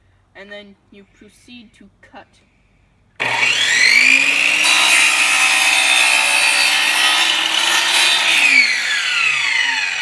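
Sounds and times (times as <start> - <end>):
electric chop saw whining: 3.2 - 10.0
saw blade cutting board: 3.2 - 10.0.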